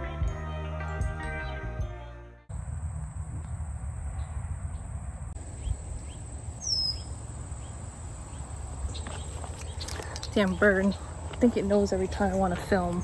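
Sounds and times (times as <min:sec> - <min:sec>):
high insect drone: 0:02.5 - 0:12.2.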